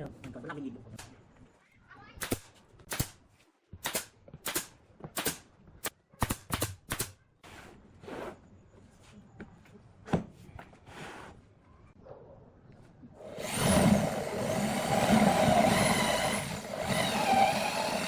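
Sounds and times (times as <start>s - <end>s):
scraping and brushing: 10.4s - 11.6s.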